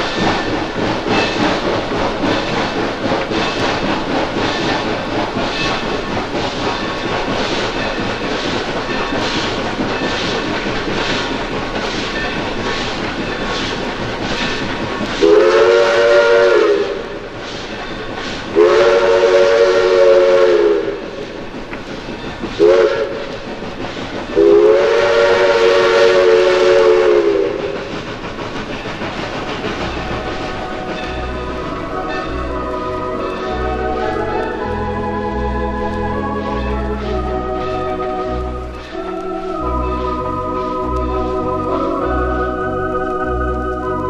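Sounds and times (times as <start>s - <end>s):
wheels clicking over rail joints: 0.0s - 44.0s
train whistle blasts: 15.2s - 17.2s, 18.6s - 21.2s, 22.6s - 23.4s, 24.4s - 27.8s, 31.0s - 44.0s.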